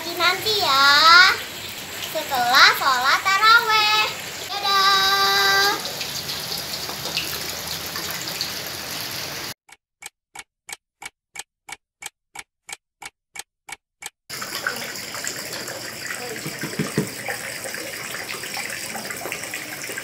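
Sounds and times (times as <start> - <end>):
clock ticking: 9.7 - 14.2.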